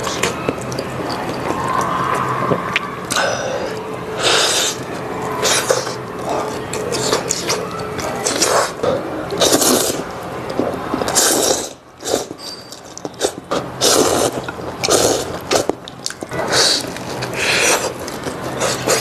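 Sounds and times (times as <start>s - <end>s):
person chewing: 0.0s - 8.7s, 9.3s - 19.0s.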